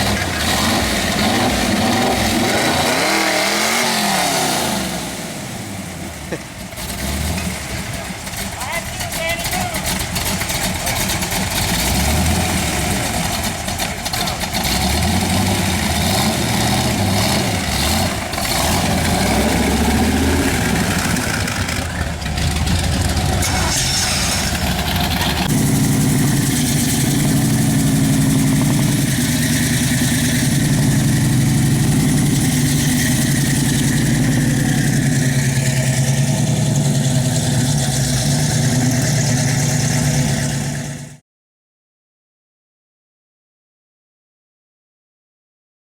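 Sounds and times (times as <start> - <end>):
car engine idling: 4.9 - 41.2.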